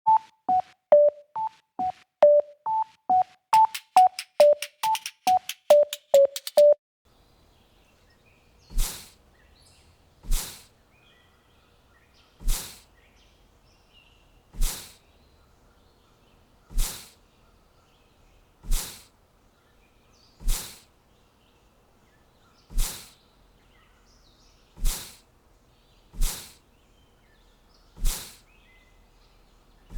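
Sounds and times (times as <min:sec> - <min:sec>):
electronic beeping tune: 0:00.1 - 0:06.8
faint bird chirps: 0:07.2 - 0:29.9.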